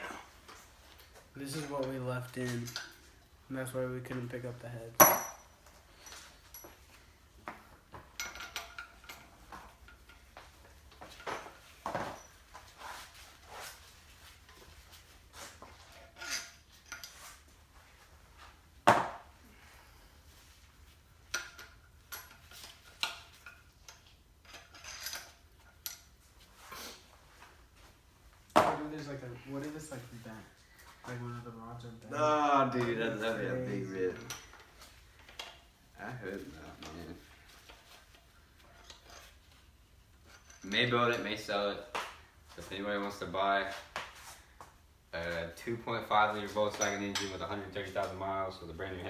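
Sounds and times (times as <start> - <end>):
light metallic clinks and taps: 5.0 - 12.3, 16.0 - 17.3, 34.2 - 35.7, 46.7 - 47.5.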